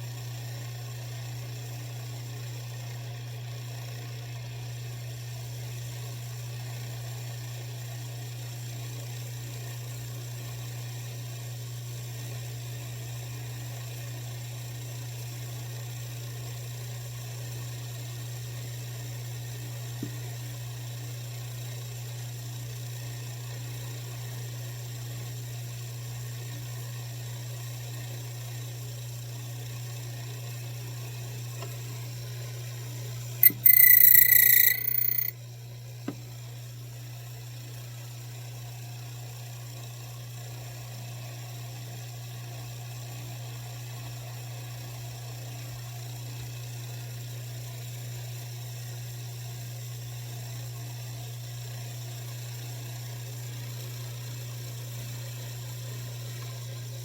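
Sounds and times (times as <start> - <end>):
cutter high-pitched whine: 33.4 - 35.3.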